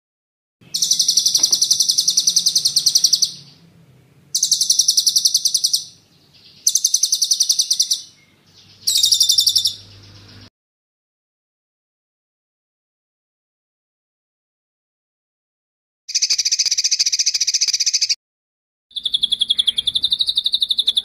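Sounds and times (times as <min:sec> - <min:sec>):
songbird rolling trills: 0:00.7 - 0:03.7, 0:04.3 - 0:10.5, 0:19.0 - 0:21.0.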